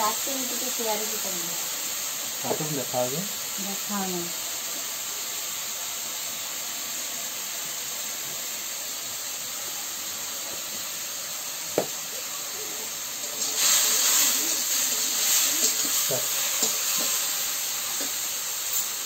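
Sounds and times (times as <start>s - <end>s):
food sizzling in oil: 0.0s - 19.0s
metal ladle stirring pan: 13.2s - 17.2s.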